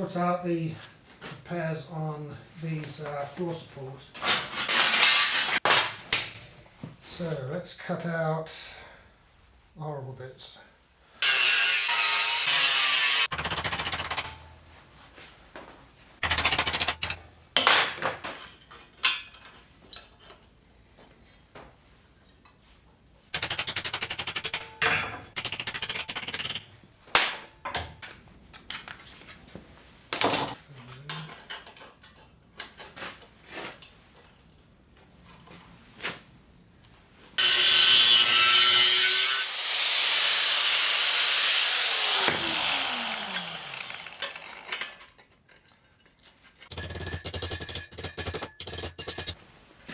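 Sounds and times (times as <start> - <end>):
power tool cutting steel: 11.2 - 14.4, 16.2 - 17.2, 23.4 - 26.7, 37.4 - 45.1, 46.7 - 49.4
clicks and knocks: 46.7 - 49.4.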